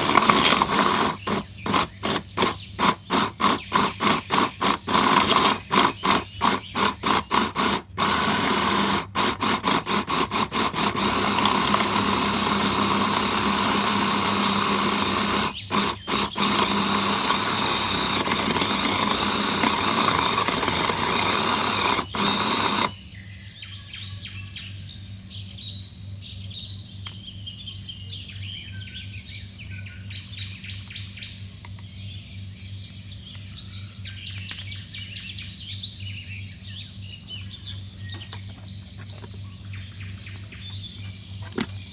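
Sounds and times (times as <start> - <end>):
loud steady whirring: 0.0 - 23.0.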